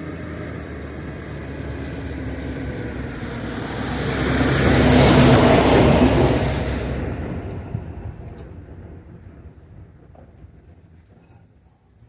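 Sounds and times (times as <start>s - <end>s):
vehicle driving past: 0.0s - 9.6s.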